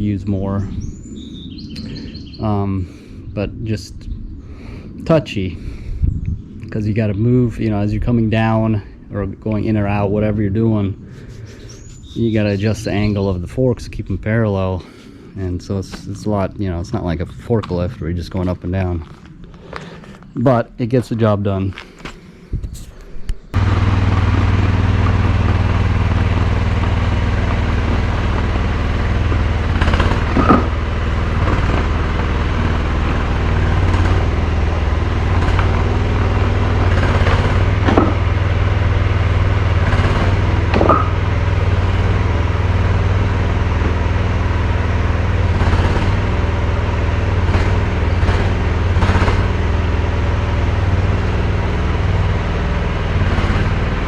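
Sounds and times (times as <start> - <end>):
excavator engine running: 0.0 - 20.4, 22.8 - 54.0
short knocks: 29.8 - 30.8, 37.8 - 38.3, 40.7 - 41.3.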